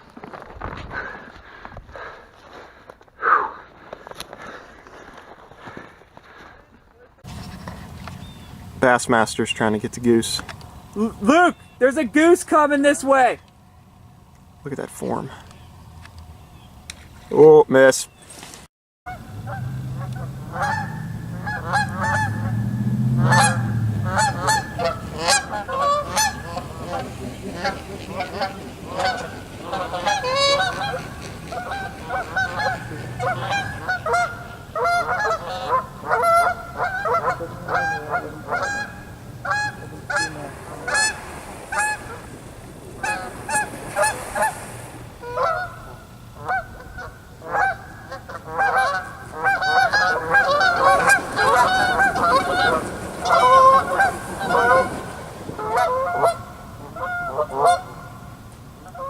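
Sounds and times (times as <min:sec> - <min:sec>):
geese honking: 0:07.2 - 0:14.0, 0:19.1 - 0:59.0.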